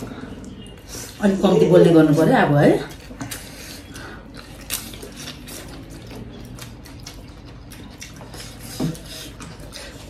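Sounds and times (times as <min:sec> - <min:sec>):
people chewing food: 0:00.0 - 0:10.0.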